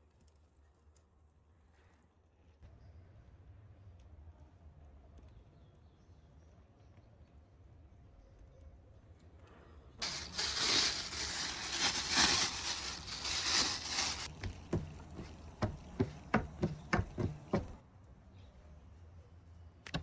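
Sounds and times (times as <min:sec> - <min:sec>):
harsh rustling or scraping: 0:10.0 - 0:17.8
sharp knocks: 0:14.4 - 0:17.8.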